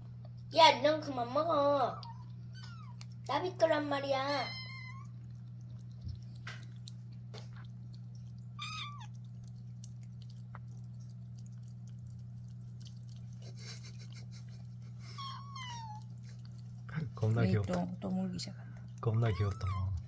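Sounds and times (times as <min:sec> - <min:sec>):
steady low hum: 0:00.0 - 0:20.0
cat meowing: 0:02.0 - 0:03.1, 0:04.2 - 0:05.2, 0:08.6 - 0:09.2, 0:15.2 - 0:16.1, 0:19.2 - 0:20.0.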